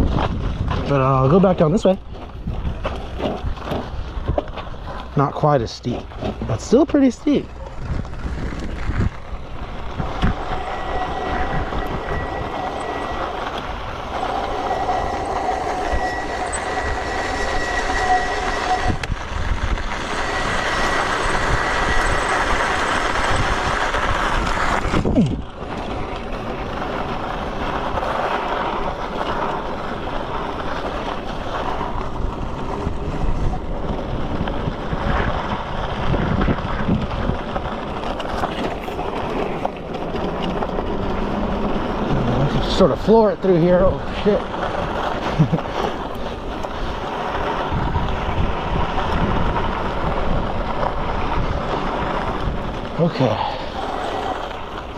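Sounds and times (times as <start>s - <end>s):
wind on microphone: 0.0s - 5.1s, 5.8s - 42.9s, 43.7s - 54.9s
bike rattling over rocks: 0.0s - 10.6s, 19.1s - 54.9s
high whine: 6.0s - 25.2s, 38.5s - 54.9s.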